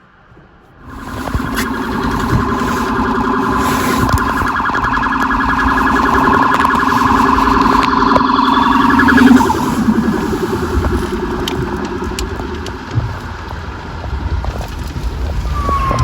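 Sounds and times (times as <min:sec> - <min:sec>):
police siren fast-pulsing: 0:00.8 - 0:13.6.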